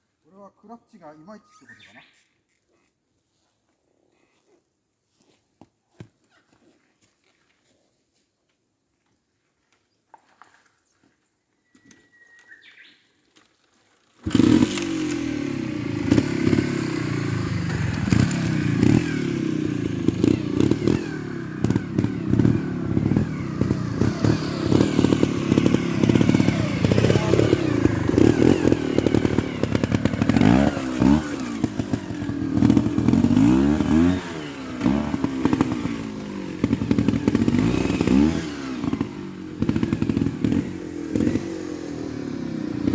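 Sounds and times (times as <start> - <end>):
motorcycle engine revving: 14.2 - 42.9.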